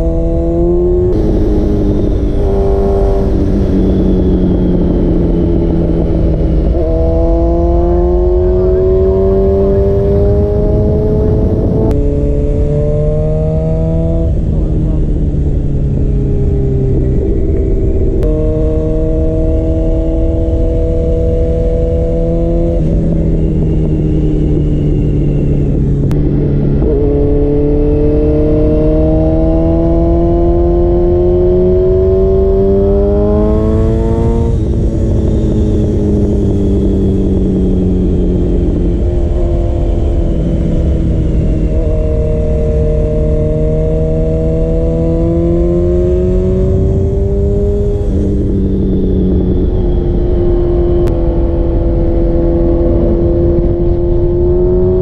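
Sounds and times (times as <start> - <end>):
motorcycle engine accelerating: 0.0 - 55.0
steady rush of noise: 1.0 - 12.7.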